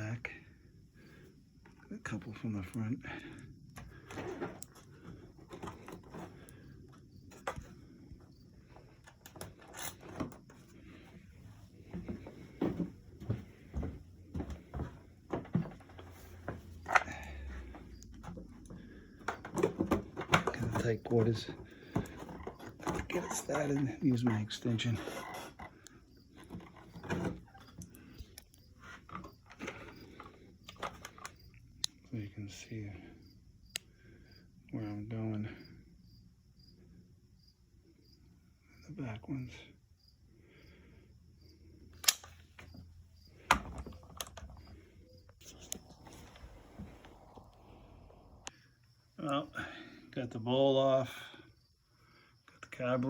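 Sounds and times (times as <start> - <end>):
clicks and knocks of parts handled: 8.8 - 10.7, 13.7 - 23.8, 25.1 - 32.0, 42.0 - 42.8, 43.4 - 44.7
socket wrench clicking: 42.0 - 42.4.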